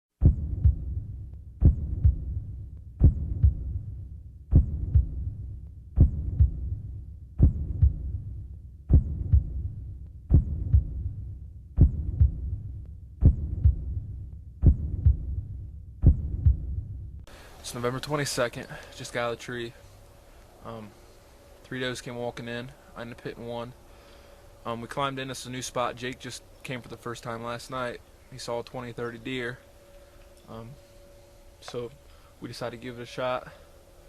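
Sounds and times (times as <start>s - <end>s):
heartbeat thumps: 0.2s - 17.3s
low rumble: 0.2s - 17.3s.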